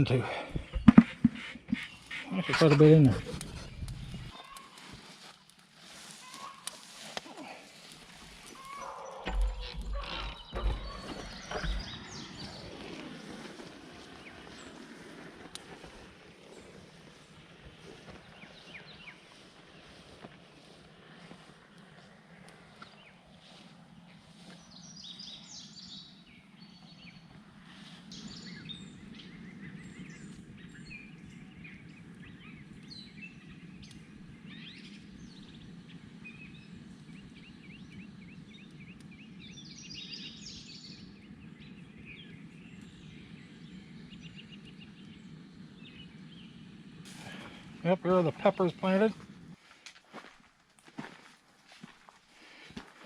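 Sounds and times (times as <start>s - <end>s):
birds chirping and calling: 0.0s - 5.2s, 6.0s - 13.4s.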